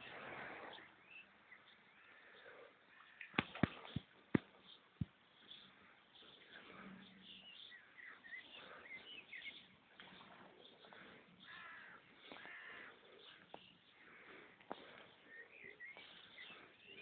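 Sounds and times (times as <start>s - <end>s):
faint bird calls and chirps: 0.0s - 17.0s
sharp tap: 3.4s - 5.1s.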